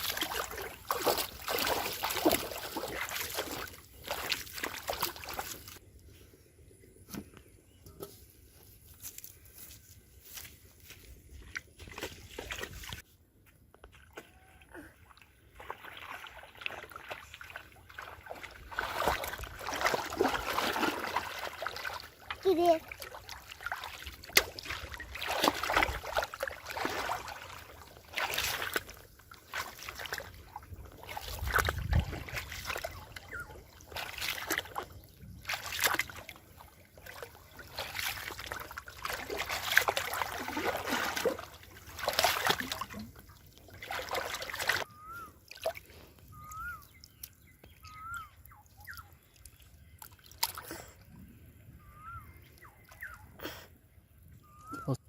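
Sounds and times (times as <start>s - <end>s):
water splashing and sloshing: 0.0s - 6.3s, 10.2s - 55.0s.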